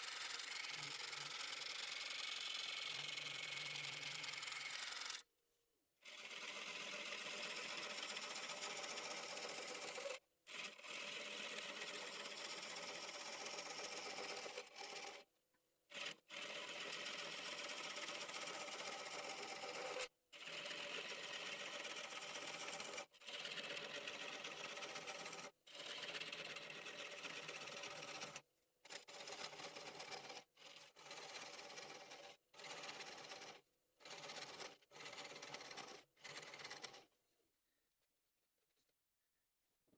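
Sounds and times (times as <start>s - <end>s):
tool scraping spinning wood: 24.1s - 37.1s.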